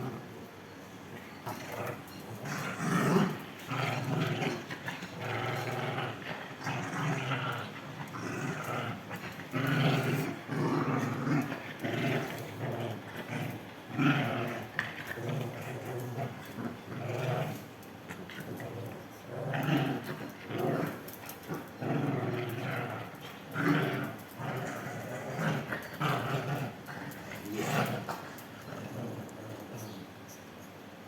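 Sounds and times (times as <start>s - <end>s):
pet animal growling: 0.0s - 30.3s.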